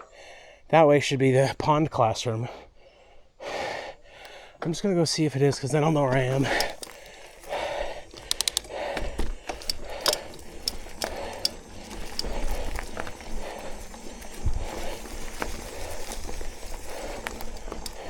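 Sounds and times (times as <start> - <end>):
rider breathing hard: 2.4 - 4.8, 5.9 - 18.0
mountain bike rattling on dirt: 5.6 - 18.0
drivetrain ticking: 5.7 - 18.0.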